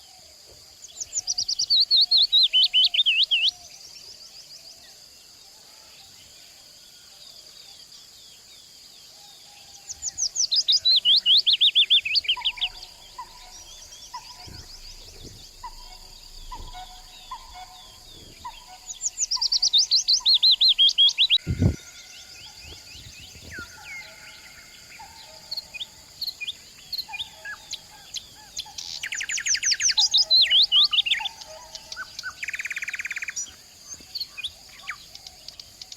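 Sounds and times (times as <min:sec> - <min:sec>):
low thump: 0:12.8 - 0:19.6.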